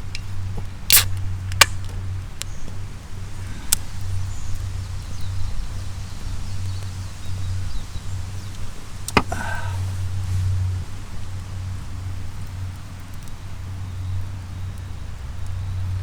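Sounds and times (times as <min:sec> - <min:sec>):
sharp click: 0:00.9 - 0:01.8.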